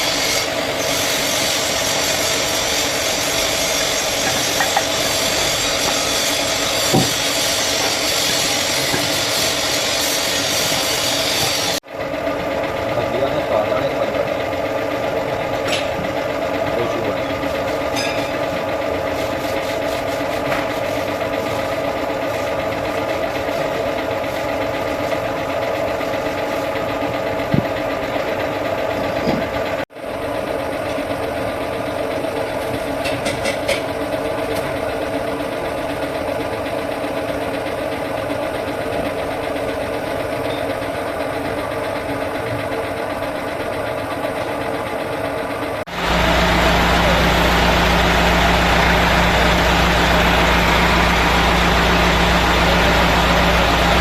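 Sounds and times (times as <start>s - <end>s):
engine humming: 45.9s - 54.0s.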